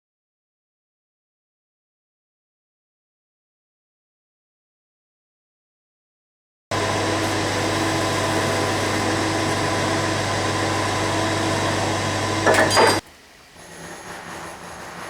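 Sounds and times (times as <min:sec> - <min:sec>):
power tool motor humming: 0:06.7 - 0:13.0.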